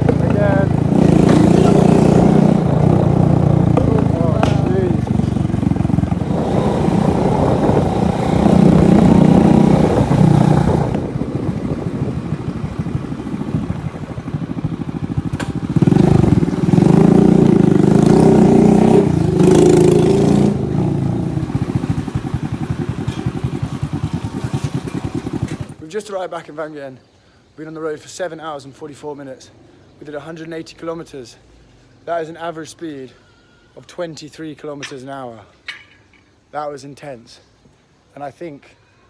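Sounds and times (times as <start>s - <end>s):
motorbike engine revving: 0.0s - 25.8s.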